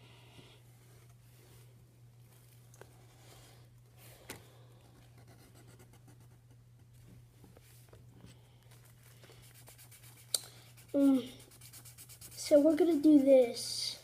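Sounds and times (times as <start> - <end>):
low steady hum: 0.0 - 14.0
marker scratching on paper: 9.4 - 14.0.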